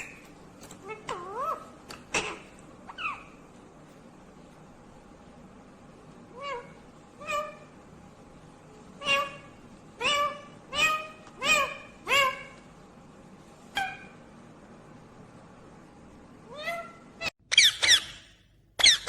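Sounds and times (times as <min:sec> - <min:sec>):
parrot calling: 0:00.0 - 0:03.5, 0:06.3 - 0:07.8, 0:08.8 - 0:12.7, 0:13.7 - 0:14.2, 0:16.5 - 0:19.0.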